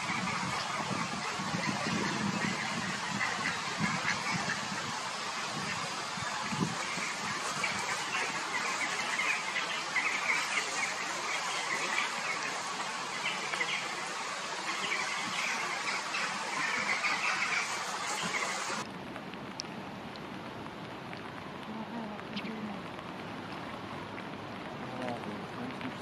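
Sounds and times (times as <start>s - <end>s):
steady outdoor hiss: 0.0s - 26.0s
bird chirping: 6.4s - 18.8s.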